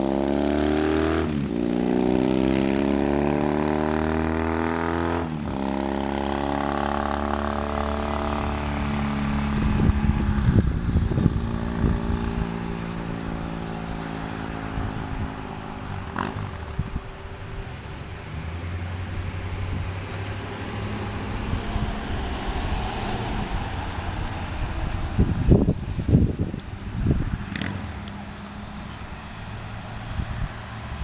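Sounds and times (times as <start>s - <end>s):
low engine hum: 0.0s - 31.0s
motorcycle engine running: 5.5s - 18.4s
wind buffeting microphone: 7.4s - 31.0s.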